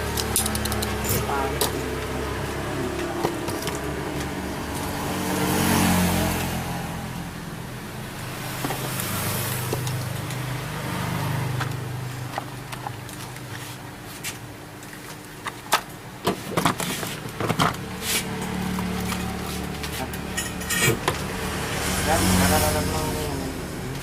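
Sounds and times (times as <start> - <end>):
vehicle engine running: 16.9 - 24.0.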